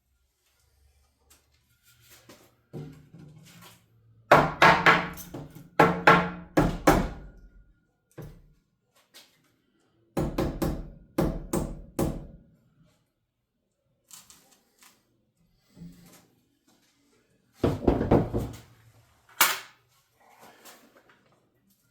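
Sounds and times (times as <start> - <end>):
hammer striking wood: 4.3 - 7.4, 10.2 - 12.4.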